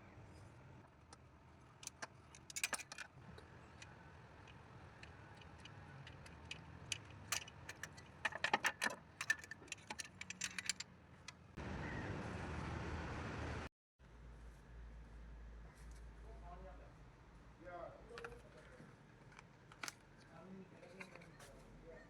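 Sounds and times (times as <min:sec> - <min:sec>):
metallic clicks and clinks: 0:01.8 - 0:11.4
engine humming: 0:03.2 - 0:15.8.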